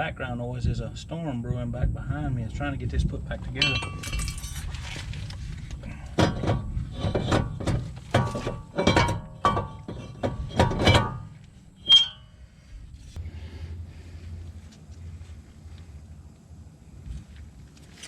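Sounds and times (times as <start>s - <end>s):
metal tools knocking and clinking: 3.6s - 4.7s, 6.2s - 12.0s.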